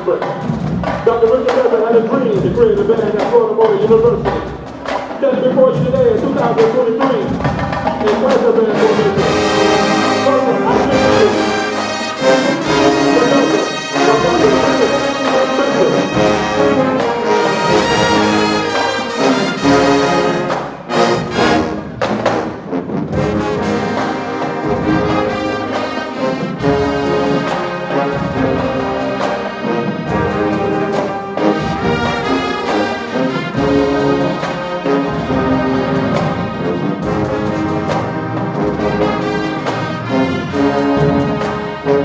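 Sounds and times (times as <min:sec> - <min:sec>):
marching band playing: 0:00.0 - 0:42.0
trombones and trumpets: 0:00.0 - 0:42.0.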